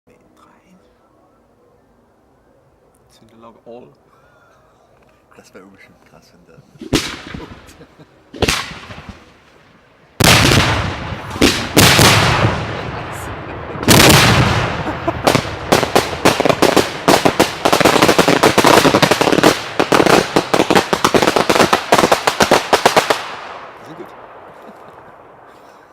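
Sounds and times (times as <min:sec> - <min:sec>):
rapid fireworks crackling: 0:06.7 - 0:25.9
fireworks booming bangs: 0:06.8 - 0:25.9.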